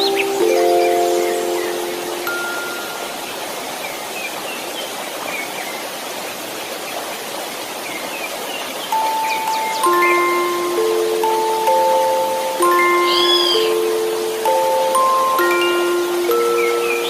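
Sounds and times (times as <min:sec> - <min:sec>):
rushing water noise: 0:00.0 - 0:17.0
sustained chime note: 0:09.6 - 0:17.0
faint bird chirps: 0:12.8 - 0:14.1.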